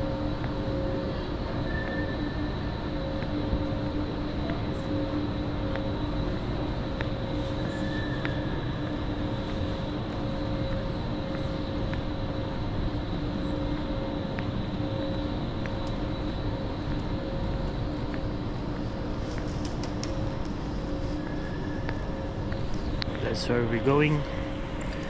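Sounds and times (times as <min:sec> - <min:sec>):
faint clicks: 0:19.3 - 0:20.5.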